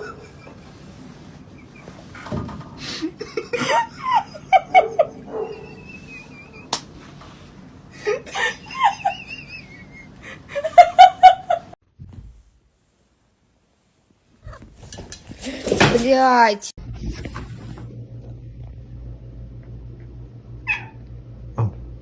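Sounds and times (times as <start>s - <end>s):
people laughing: 2.8s - 6.8s, 8.0s - 11.8s.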